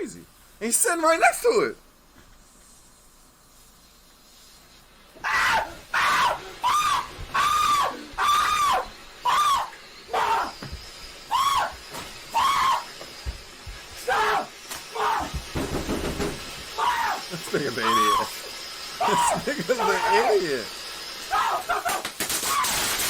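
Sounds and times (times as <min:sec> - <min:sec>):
young man screaming: 0:05.2 - 0:10.6, 0:11.3 - 0:12.9, 0:14.0 - 0:15.4, 0:16.8 - 0:18.3, 0:19.0 - 0:20.6, 0:21.3 - 0:22.9.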